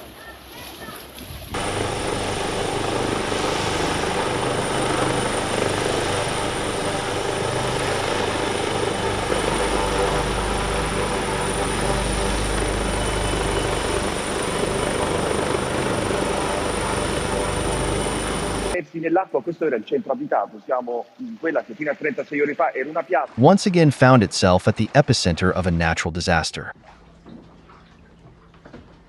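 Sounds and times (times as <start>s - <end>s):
helicopter running: 1.6s - 18.8s.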